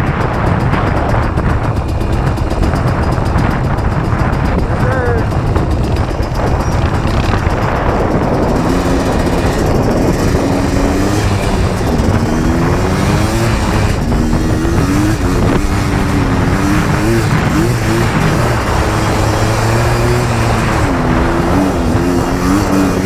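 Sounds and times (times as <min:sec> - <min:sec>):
atv engine revving: 0:00.0 - 0:23.0
wind and terrain rumble: 0:00.0 - 0:23.0.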